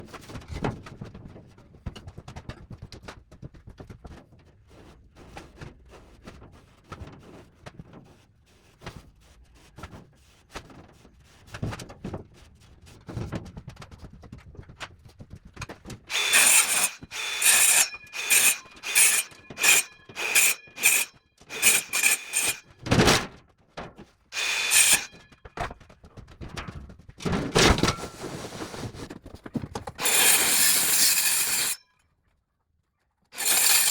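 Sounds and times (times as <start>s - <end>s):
power tool grinding metal: 16.1s - 22.7s, 24.4s - 25.2s, 30.0s - 31.8s, 33.4s - 33.9s.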